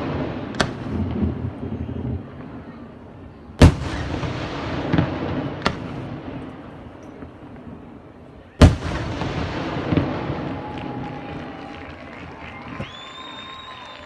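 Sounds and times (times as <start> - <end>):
firework bangs with rolling echo: 0.0 - 13.6
smaller firework bangs: 0.0 - 14.0.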